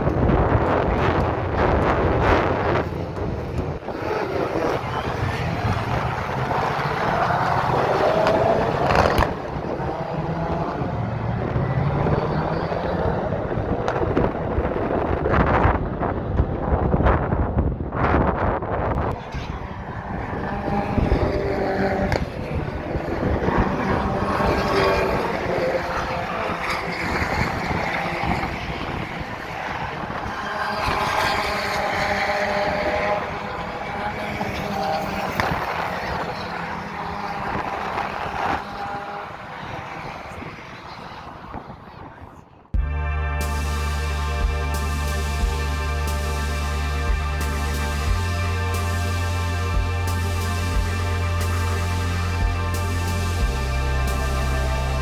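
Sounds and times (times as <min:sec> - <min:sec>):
racing car engines passing: 0:00.0 - 0:17.2, 0:18.9 - 0:55.0
wind buffeting microphone: 0:00.0 - 0:42.8.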